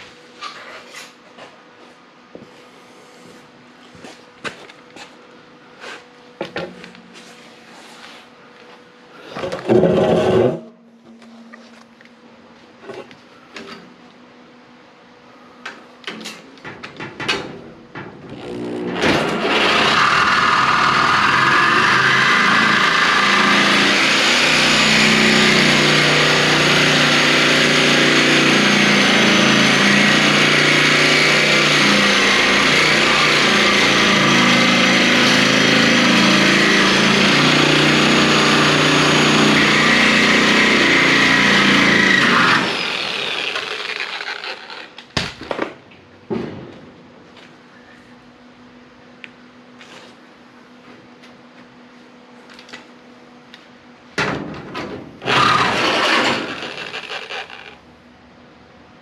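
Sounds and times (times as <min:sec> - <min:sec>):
reciprocating saw cutting sheet steel: 0:18.4 - 0:45.0, 0:55.2 - 0:57.8.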